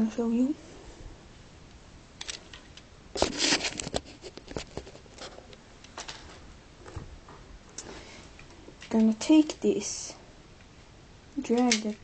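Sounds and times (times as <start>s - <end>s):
plastic toy bricks clicking: 11.5s - 12.0s.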